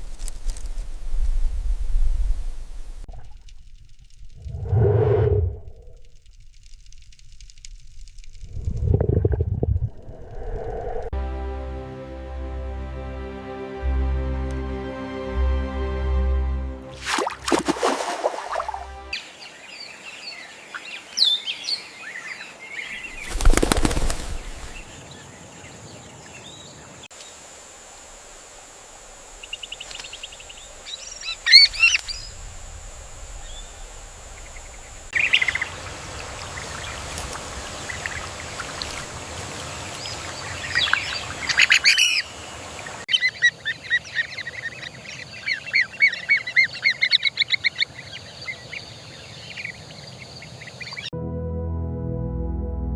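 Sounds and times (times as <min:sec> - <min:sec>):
bird wings flapping: 0:22.9 - 0:25.0.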